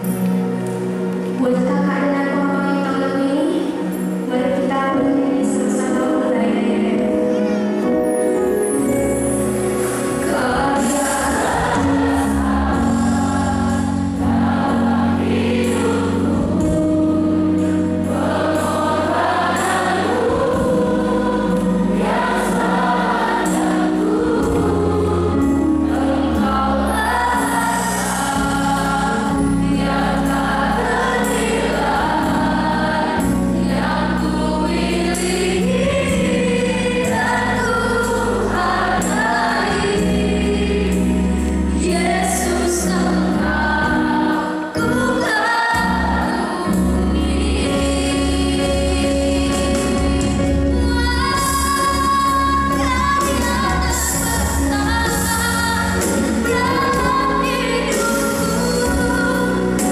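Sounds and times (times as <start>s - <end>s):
instrumental accompaniment: 7.0s - 59.9s
woman singing gospel song: 10.2s - 13.8s, 34.1s - 41.1s, 41.8s - 59.9s.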